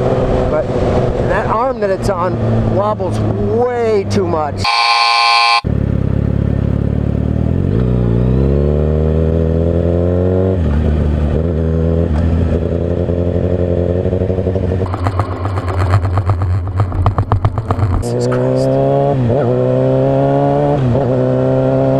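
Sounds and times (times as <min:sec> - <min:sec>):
motorcycle engine accelerating: 0:05.6 - 0:21.9.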